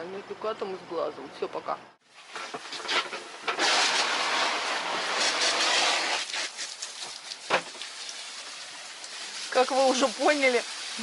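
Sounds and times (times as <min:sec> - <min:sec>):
water gushing from hose: 0:02.1 - 0:11.0.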